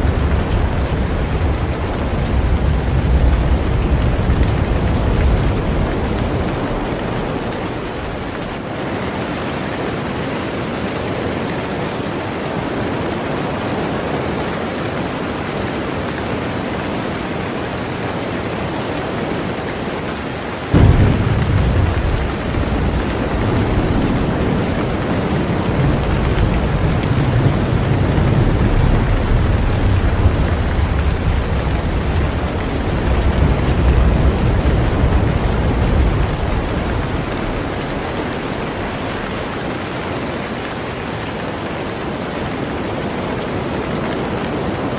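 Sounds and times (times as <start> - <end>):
deep rumble of thunder: 0.0 - 8.7, 20.7 - 40.6
heavy rain falling on a boat: 0.0 - 44.9.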